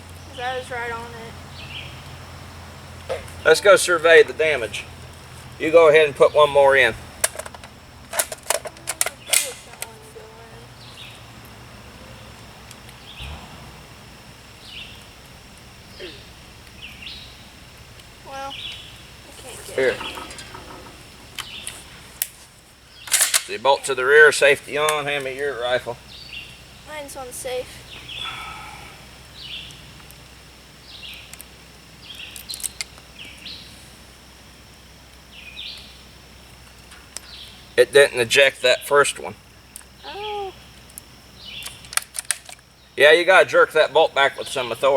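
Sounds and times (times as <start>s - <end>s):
low outdoor background: 0.0s - 44.9s
bird chirps: 0.1s - 2.2s, 10.5s - 22.1s, 26.0s - 27.0s, 27.8s - 30.0s, 30.8s - 31.4s, 40.0s - 41.8s
soft low thump: 13.2s - 14.3s.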